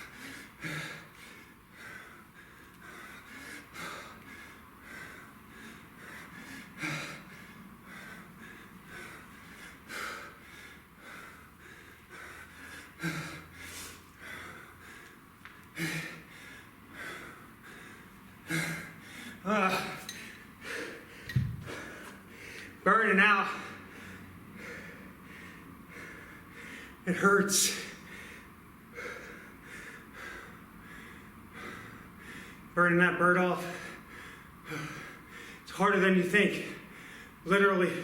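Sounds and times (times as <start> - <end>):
man breathing hard: 0.0 - 32.8, 33.4 - 35.9, 36.5 - 38.0
man grunting: 19.4 - 20.1.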